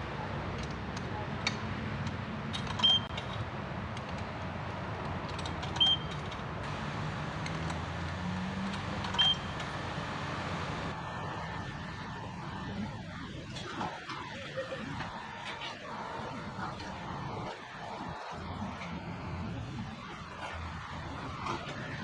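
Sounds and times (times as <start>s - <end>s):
steady rushing water spray: 6.7s - 9.1s
short high-pitched beeps: 9.2s - 9.6s.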